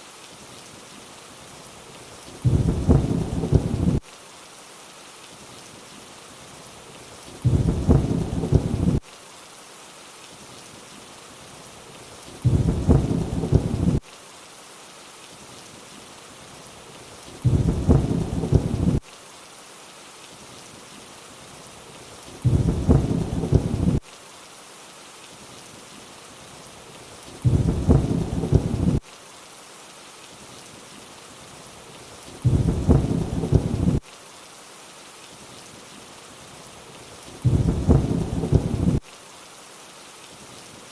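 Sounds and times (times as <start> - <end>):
steady rain: 0.0 - 40.9
low thunder rumble: 2.4 - 4.0, 7.4 - 9.0, 12.4 - 14.0, 17.4 - 19.0, 22.4 - 24.0, 27.4 - 29.0, 32.4 - 34.0, 37.4 - 39.0.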